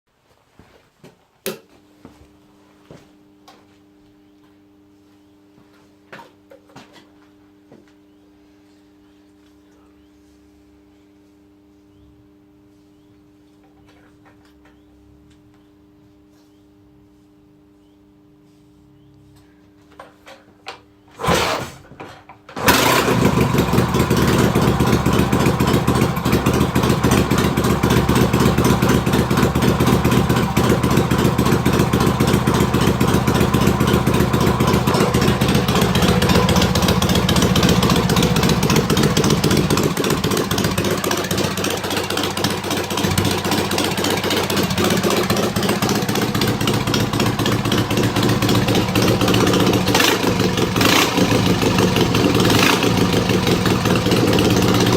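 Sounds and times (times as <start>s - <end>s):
motorcycle engine starting and running: 19.9s - 54.9s.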